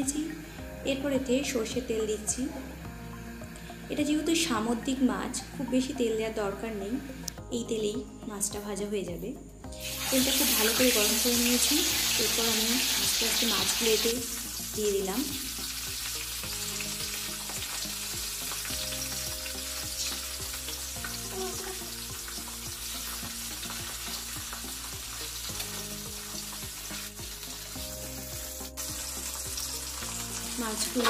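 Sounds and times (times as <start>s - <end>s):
fish sizzling in hot oil: 9.8s - 31.0s.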